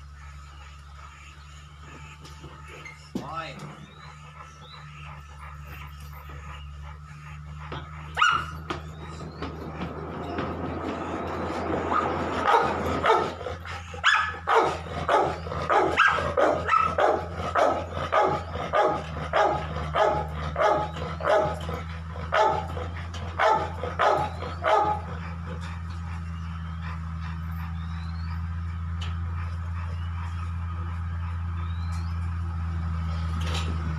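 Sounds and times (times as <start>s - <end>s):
steady low hum: 0.0s - 33.9s
dog barking: 8.1s - 8.8s, 11.9s - 25.2s.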